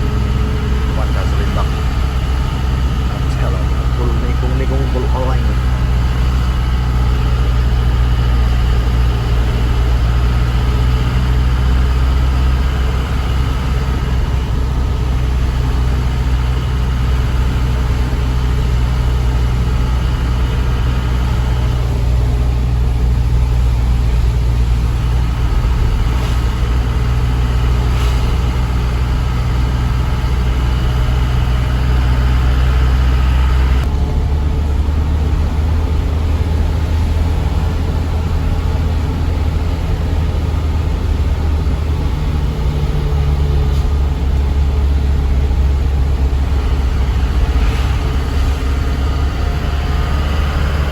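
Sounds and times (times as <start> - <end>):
road noise: 0.0 - 50.9
truck diesel engine drone: 0.0 - 50.9.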